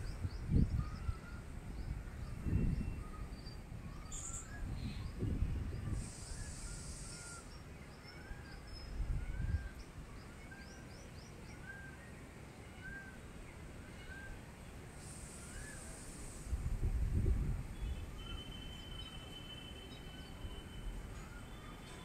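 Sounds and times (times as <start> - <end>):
wind noise rumble: 0.0 - 7.3, 8.9 - 9.8, 16.3 - 18.2
faint high chirps: 5.9 - 9.9.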